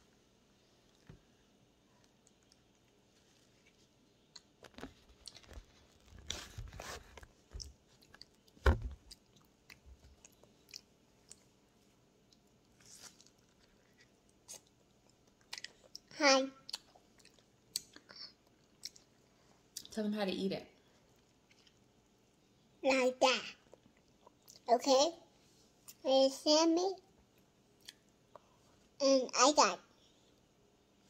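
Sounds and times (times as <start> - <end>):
child chewing soft fruit: 0.6 - 19.9, 20.9 - 22.7, 23.6 - 24.7, 27.1 - 29.0.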